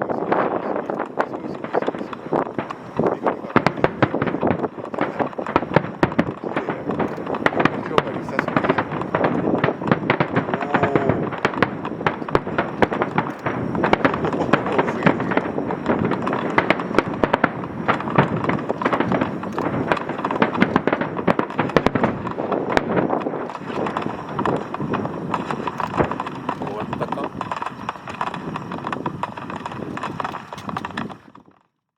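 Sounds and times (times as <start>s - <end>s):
fireworks crackling and popping: 0.0s - 31.9s
crowd murmur: 0.1s - 5.6s, 10.4s - 11.4s.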